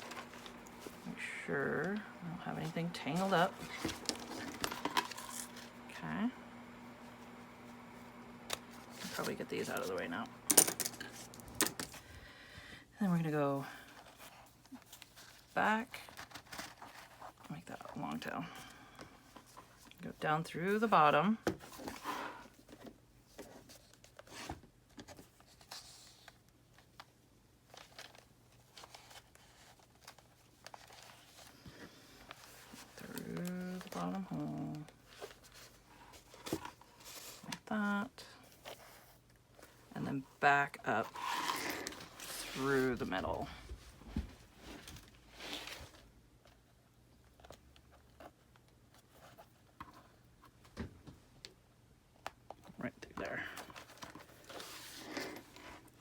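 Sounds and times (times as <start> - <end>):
paper pages rustling: 0.0 - 5.7, 8.4 - 10.1, 13.8 - 17.9, 21.6 - 37.6, 53.4 - 56.0.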